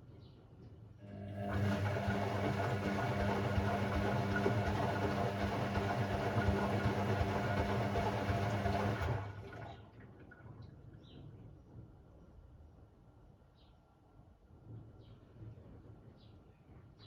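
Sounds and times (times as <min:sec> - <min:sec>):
washing machine hum: 0:01.0 - 0:10.6
water rushing in washing machine: 0:01.0 - 0:10.7.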